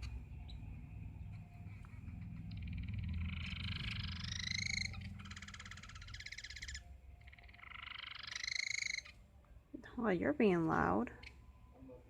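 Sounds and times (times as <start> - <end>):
bird rattling call: 1.7 - 9.2.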